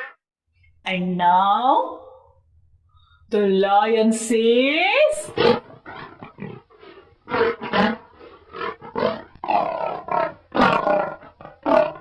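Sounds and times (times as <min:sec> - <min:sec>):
lion roaring grunts: 0:05.3 - 0:12.0.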